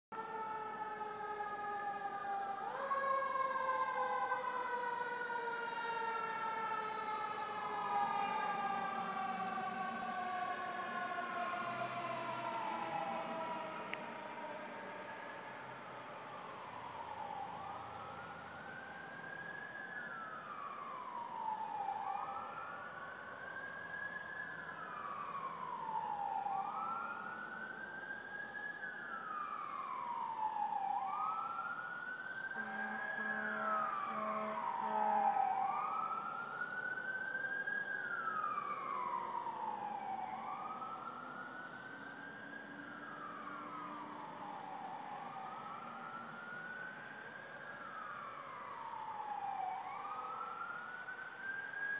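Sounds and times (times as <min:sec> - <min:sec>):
emergency siren wailing: 0:00.1 - 0:51.9
fainter higher siren: 0:00.2 - 0:51.9
low horn blasts: 0:32.6 - 0:35.5.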